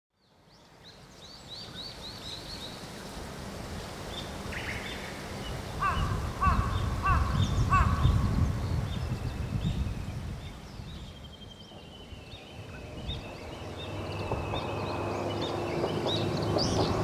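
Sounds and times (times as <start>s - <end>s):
birds chirping: 0.2s - 17.0s
lower repeated bird call: 5.7s - 8.6s.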